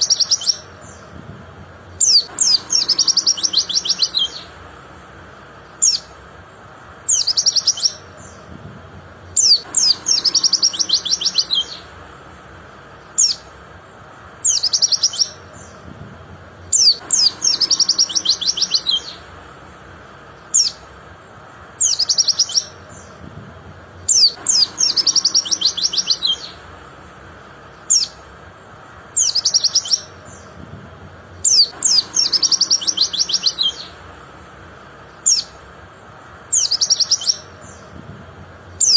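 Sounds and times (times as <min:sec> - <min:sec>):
bird singing high chirps: 0:00.0 - 0:01.2, 0:01.9 - 0:04.7, 0:05.6 - 0:06.2, 0:07.0 - 0:08.6, 0:09.2 - 0:12.0, 0:13.0 - 0:13.6, 0:14.4 - 0:15.9, 0:16.6 - 0:19.3, 0:20.3 - 0:20.9, 0:21.7 - 0:23.2, 0:24.0 - 0:26.7, 0:27.6 - 0:28.3, 0:29.1 - 0:30.6, 0:31.3 - 0:34.1, 0:35.0 - 0:35.7, 0:36.4 - 0:38.0, 0:38.7 - 0:38.9.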